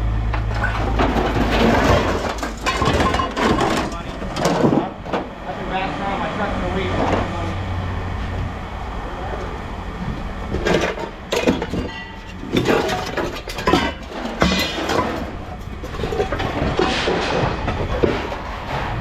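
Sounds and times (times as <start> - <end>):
low steady rumble: 0.0 - 19.0
scrap metal clanking: 0.3 - 5.3, 10.5 - 19.0.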